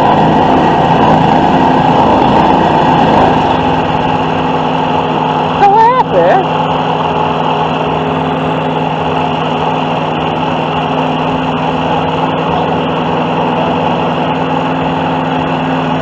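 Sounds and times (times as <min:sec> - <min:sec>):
small mower engine running: 0:00.0 - 0:16.0.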